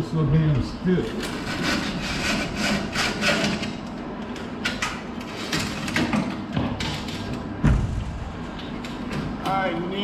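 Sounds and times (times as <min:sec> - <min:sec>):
heavy thump: 0:07.6 - 0:08.2.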